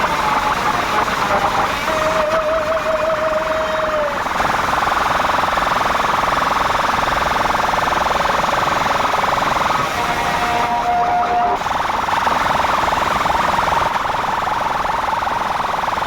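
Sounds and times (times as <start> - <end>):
buzzy horn tone: 9.8 - 11.6.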